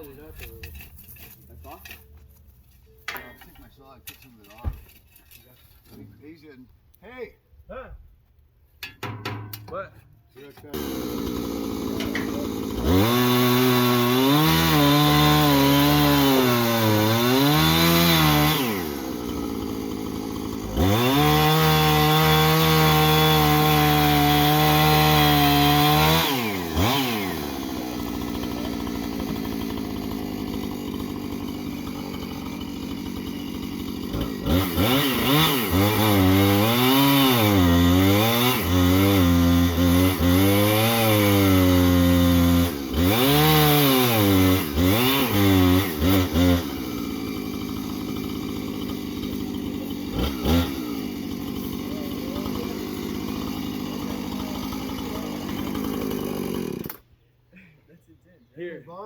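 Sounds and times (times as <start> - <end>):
chainsaw cutting wood: 10.6 - 57.1.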